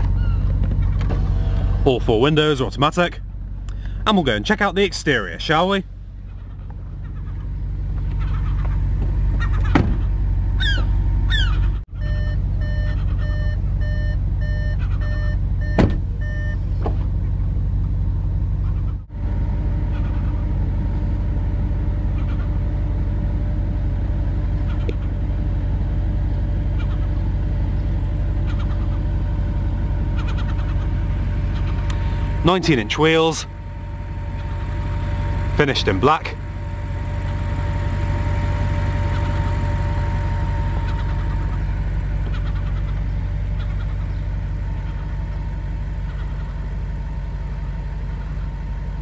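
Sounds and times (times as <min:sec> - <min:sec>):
car engine idling: 0:00.0 - 0:49.0
electronic warning chime: 0:12.0 - 0:16.6.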